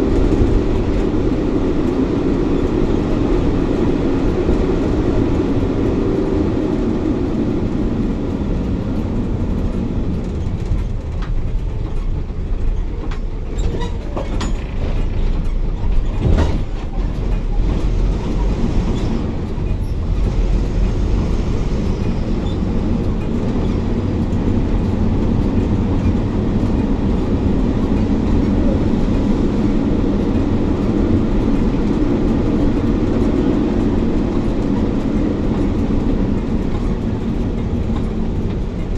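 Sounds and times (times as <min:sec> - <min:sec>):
bus engine hum: 0:00.0 - 0:38.9
road rumble: 0:00.0 - 0:38.9.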